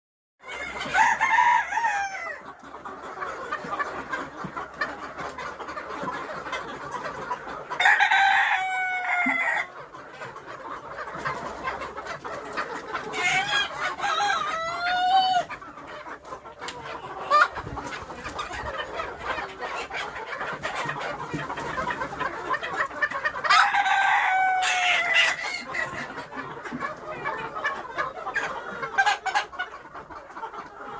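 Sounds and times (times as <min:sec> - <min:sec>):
chickens clucking: 0:00.4 - 0:30.9
roosters crowing: 0:00.5 - 0:02.4, 0:07.8 - 0:09.7, 0:13.2 - 0:15.5, 0:23.4 - 0:25.7.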